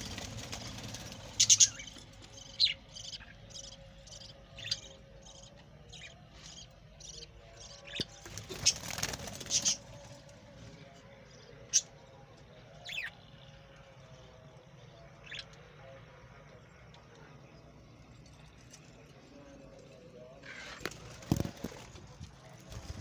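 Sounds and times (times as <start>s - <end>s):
budgerigars chirping: 1.2s - 9.8s.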